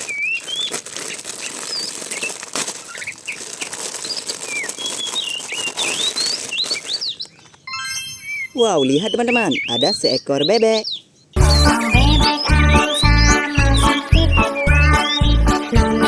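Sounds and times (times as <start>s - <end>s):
packaging rustling and crinkling: 0.0s - 7.6s
short high chirping calls: 0.0s - 15.6s.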